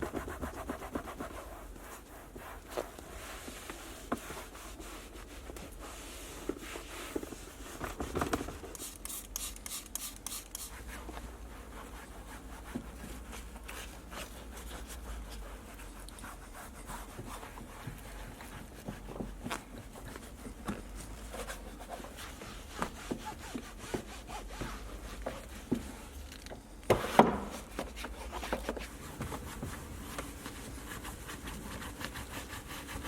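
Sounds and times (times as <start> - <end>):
scratchy rubbing on car surfaces: 0.0 - 7.2, 21.0 - 25.8, 28.0 - 33.0.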